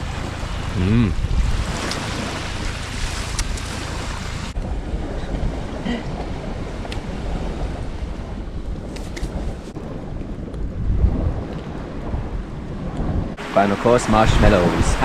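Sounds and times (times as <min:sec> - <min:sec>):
sea surf: 0:00.0 - 0:09.9, 0:13.2 - 0:15.0
wind rumbling on microphone: 0:00.0 - 0:15.0.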